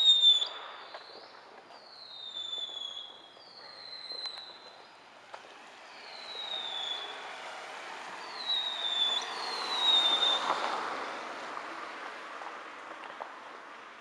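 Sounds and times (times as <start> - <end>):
whistling fireworks falling in pitch: 0.0 - 11.1.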